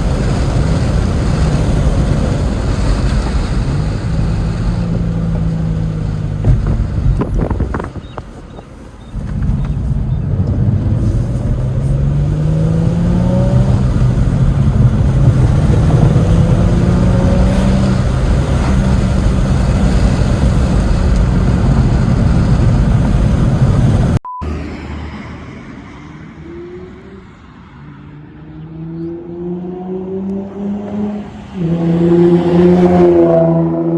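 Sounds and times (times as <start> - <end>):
car engine revving: 9.1 - 33.9.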